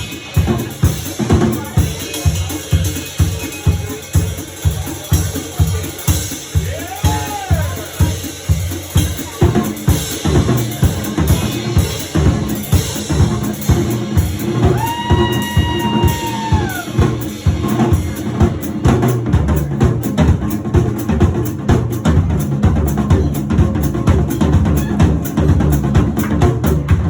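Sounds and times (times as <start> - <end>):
drum kit playing a steady beat: 0.0 - 27.0.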